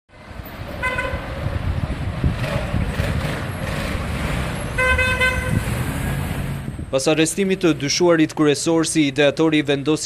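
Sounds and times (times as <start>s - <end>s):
road traffic: 0.1s - 10.0s
car horn honking: 0.8s - 1.4s, 4.7s - 5.7s.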